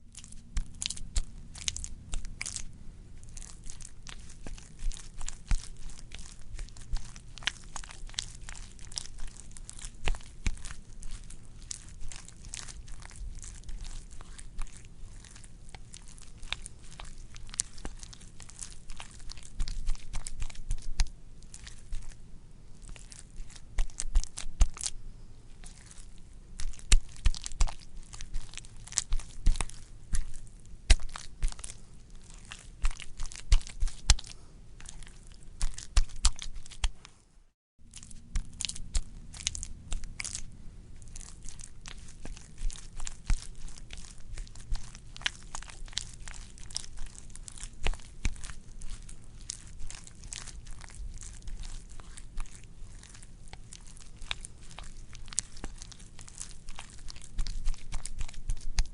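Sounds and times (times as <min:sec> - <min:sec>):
wet squelching: 0:00.0 - 0:37.1, 0:37.9 - 0:58.9.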